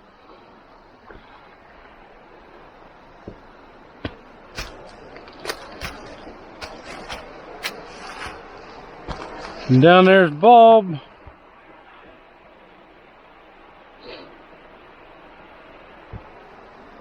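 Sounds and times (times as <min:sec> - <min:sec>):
steady faint hiss: 0:00.0 - 0:17.0
footsteps crunching on stony ground: 0:00.9 - 0:09.8.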